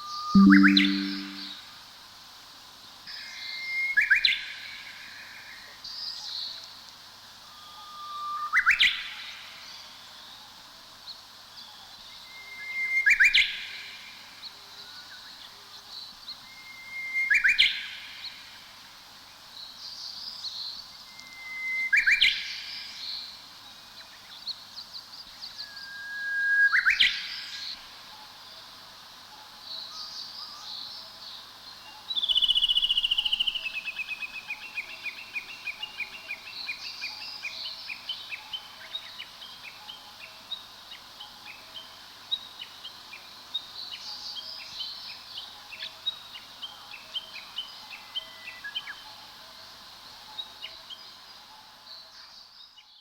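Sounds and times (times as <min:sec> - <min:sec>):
high bird twitters: 0:00.4 - 0:01.5
songbird singing whistled song: 0:00.4 - 0:01.5, 0:25.5 - 0:27.8.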